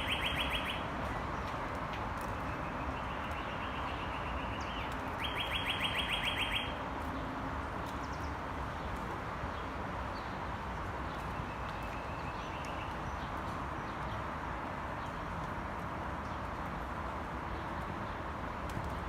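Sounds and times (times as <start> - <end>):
bird singing whistled notes: 0.0 - 0.8, 3.0 - 6.8
steady background noise: 0.0 - 19.0.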